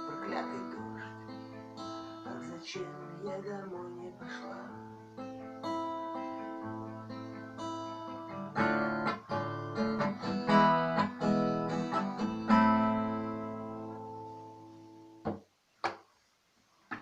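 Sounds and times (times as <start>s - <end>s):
acoustic guitar strumming chords: 0.0s - 15.4s.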